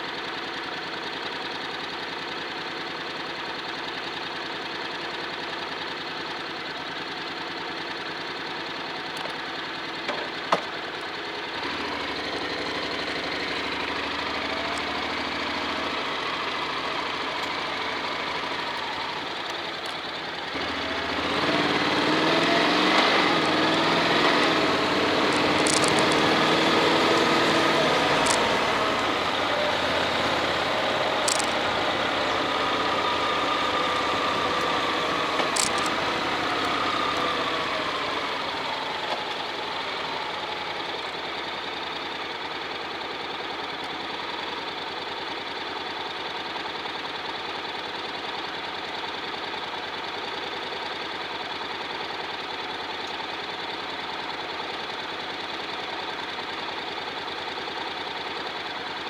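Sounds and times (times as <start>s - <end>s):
motorcycle engine idling: 0.0s - 59.0s
short clicks: 25.2s - 29.2s, 31.1s - 31.8s, 34.5s - 36.0s.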